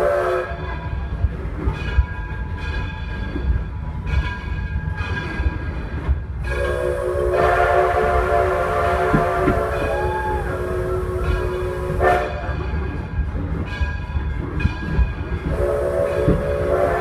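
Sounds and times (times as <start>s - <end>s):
steam locomotive whistle: 0.0s - 0.8s, 6.5s - 12.6s, 15.5s - 17.0s
train rumbling: 0.0s - 17.0s.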